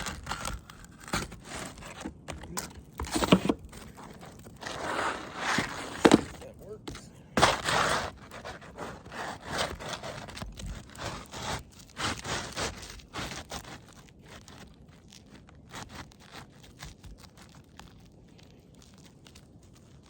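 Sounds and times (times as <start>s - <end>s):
shingle scraping on roof: 0.0s - 14.6s.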